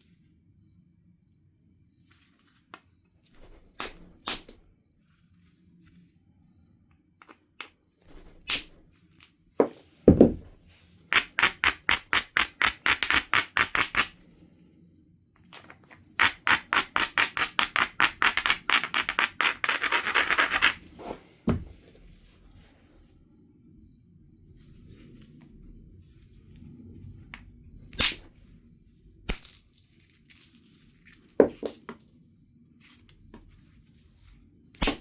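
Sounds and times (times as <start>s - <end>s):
heavy stone knocks: 9.6s - 10.6s, 21.5s - 21.7s.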